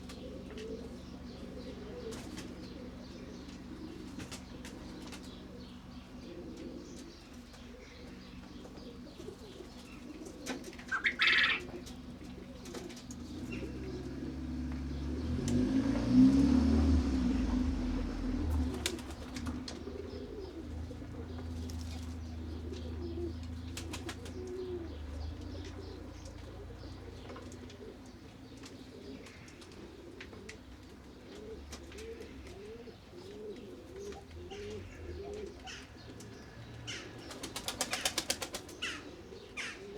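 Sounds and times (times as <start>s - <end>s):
pigeons cooing: 0.0s - 39.9s
wing flaps: 18.6s - 20.0s.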